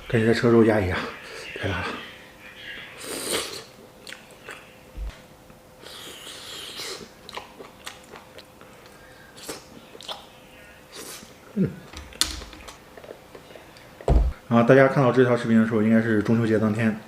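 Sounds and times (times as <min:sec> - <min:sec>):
person chewing meat: 0:04.0 - 0:04.7, 0:05.8 - 0:10.3.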